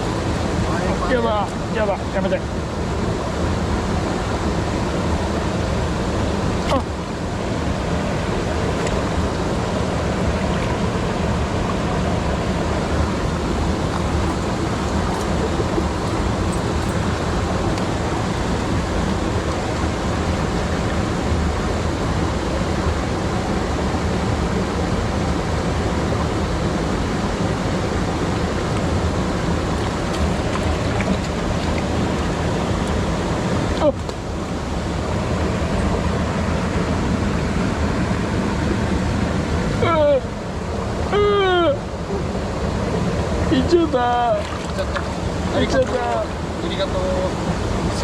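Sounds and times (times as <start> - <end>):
stream running over rocks: 0.0 - 48.0.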